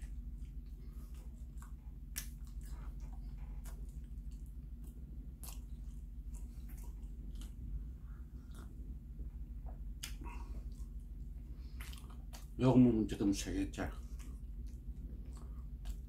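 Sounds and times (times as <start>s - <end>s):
person chewing bread: 0.0s - 12.7s, 13.7s - 16.0s
steady low hum: 0.0s - 16.0s
wet mouth smacks and clicks: 10.0s - 10.2s.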